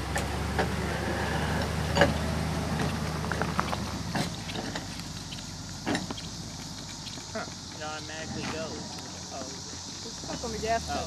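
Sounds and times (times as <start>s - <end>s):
vehicle engine low hum: 0.0s - 11.0s.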